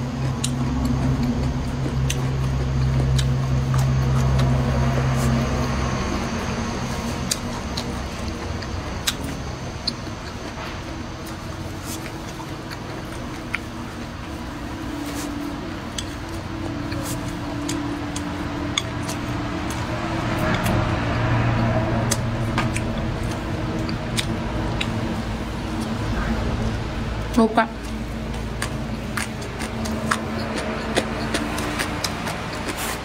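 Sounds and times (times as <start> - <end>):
chewing food: 0.0 - 33.0
low steady hum: 0.0 - 33.0.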